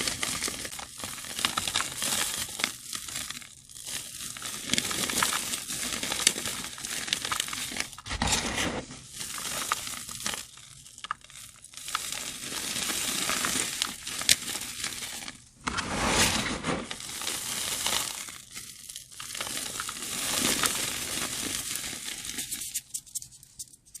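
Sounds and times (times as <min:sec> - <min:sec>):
chalk blocks crunching: 0:04.7 - 0:23.2.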